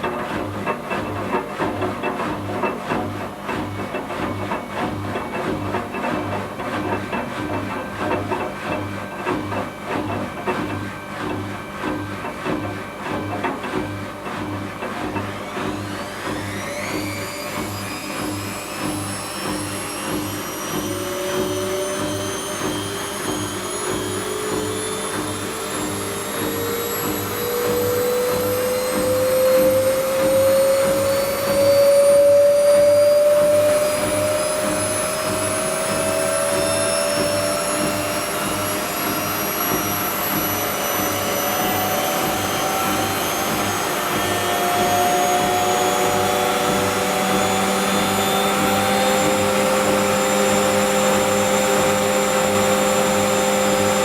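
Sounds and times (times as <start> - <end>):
washing machine spinning: 0.0 - 54.0.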